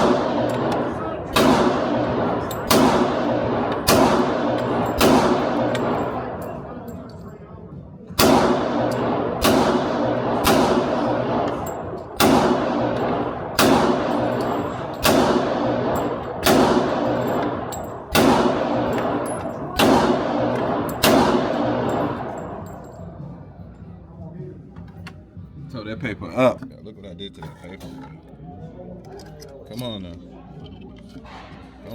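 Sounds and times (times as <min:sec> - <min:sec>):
pistol shots: 0:00.0 - 0:07.0, 0:08.2 - 0:23.1.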